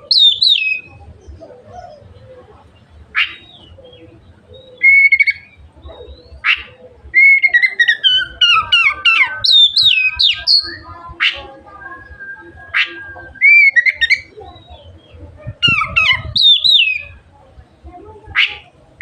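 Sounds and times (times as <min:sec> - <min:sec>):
bird singing whistled notes: 0:00.1 - 0:01.0, 0:04.6 - 0:17.2.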